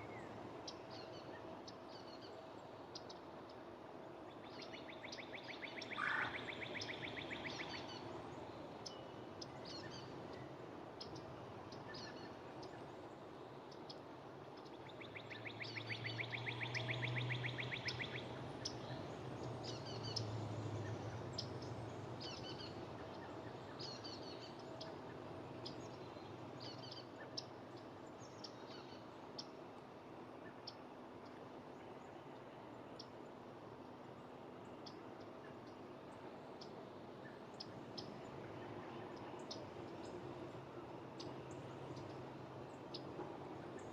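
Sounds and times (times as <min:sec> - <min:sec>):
songbird trilling: 0:05.1 - 0:08.0.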